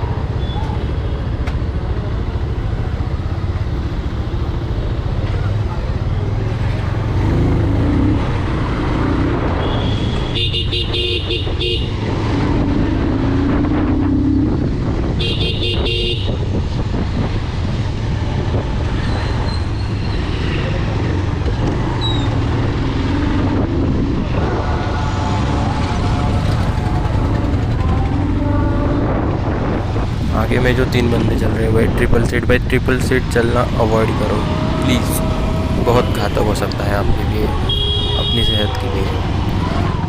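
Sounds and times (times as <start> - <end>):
vehicle horn blasts: 9.6 - 12.0, 15.2 - 16.4, 37.6 - 38.7
motorcycle engine running: 20.8 - 30.1.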